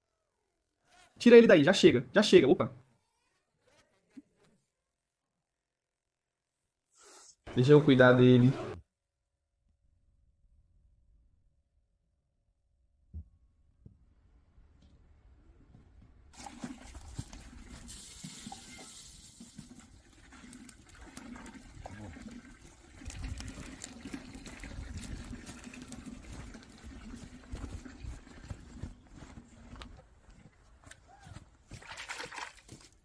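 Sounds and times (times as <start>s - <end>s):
water running and splashing: 16.4s - 28.9s, 31.7s - 32.9s.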